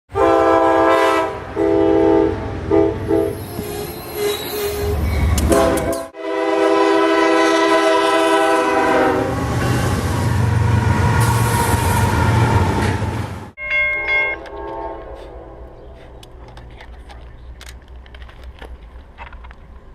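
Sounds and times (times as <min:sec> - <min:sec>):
locomotive air horn blasts: 0:00.1 - 0:03.4, 0:04.2 - 0:12.5, 0:14.4 - 0:15.7.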